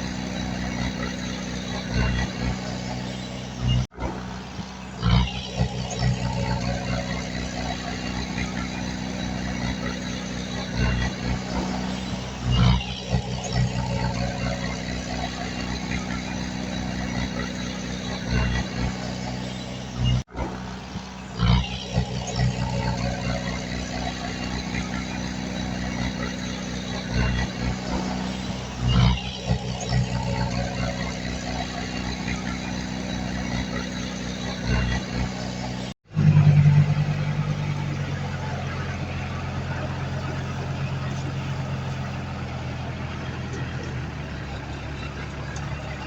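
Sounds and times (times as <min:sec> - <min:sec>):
heavy diesel engine running: 0:00.0 - 0:46.0.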